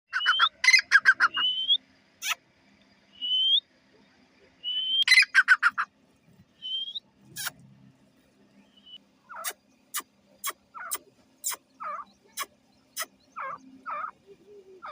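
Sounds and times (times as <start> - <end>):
bird calling whistled notes: 0.1 - 2.4, 3.2 - 3.6, 4.6 - 5.7, 6.6 - 7.5.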